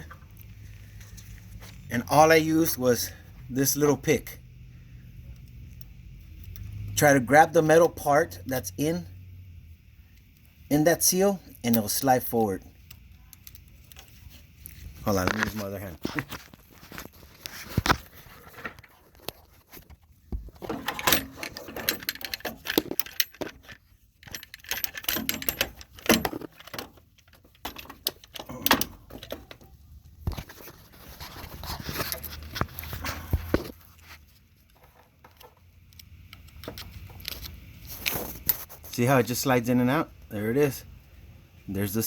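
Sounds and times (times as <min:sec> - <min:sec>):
metal pick clicking and scraping: 0:12.8 - 0:15.5, 0:20.6 - 0:29.8.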